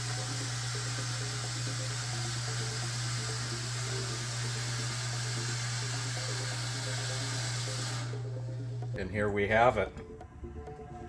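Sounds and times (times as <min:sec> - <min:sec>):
abrasive slurry spraying hiss: 0:00.0 - 0:08.2
pump humming: 0:00.0 - 0:09.0.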